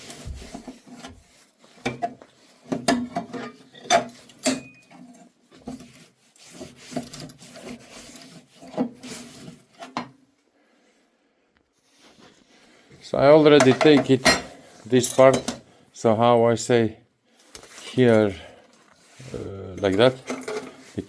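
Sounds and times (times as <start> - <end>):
hand tool scraping sheet metal: 0.0 - 10.1.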